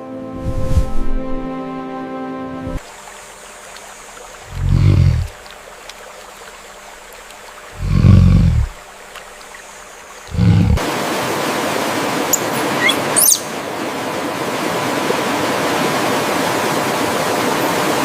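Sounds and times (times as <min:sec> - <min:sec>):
rushing forest ambience: 0:00.0 - 0:18.0
low animal growl: 0:04.5 - 0:05.4, 0:07.8 - 0:08.8, 0:10.3 - 0:10.8
bird chirps: 0:12.4 - 0:13.5.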